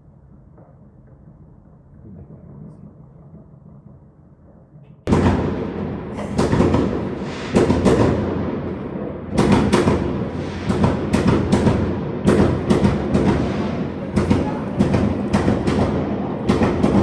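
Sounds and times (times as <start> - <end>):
continuous fireworks rumble: 0.0 - 17.0
fireworks bangs and cracks: 5.1 - 17.0.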